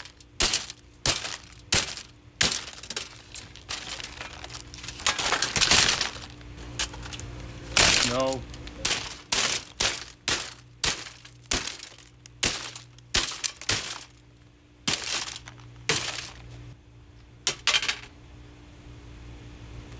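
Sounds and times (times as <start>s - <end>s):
blows smashing plastic: 0.0s - 14.2s
plastic cracking and breaking: 0.0s - 14.2s, 14.9s - 16.5s.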